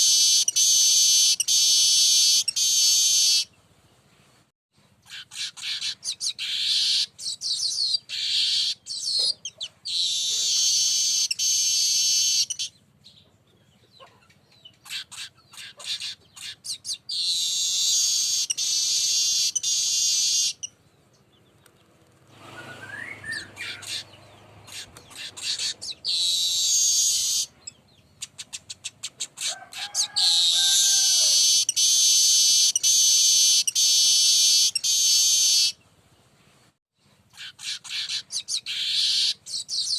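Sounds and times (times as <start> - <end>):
bird song with dry ticks and wheezes: 0.0 - 3.6, 4.8 - 22.0, 22.9 - 35.9.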